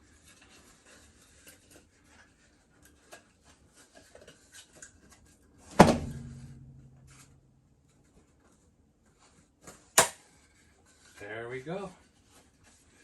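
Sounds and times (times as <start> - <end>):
loud knock: 5.8 - 7.3
low steady hum: 5.8 - 7.8.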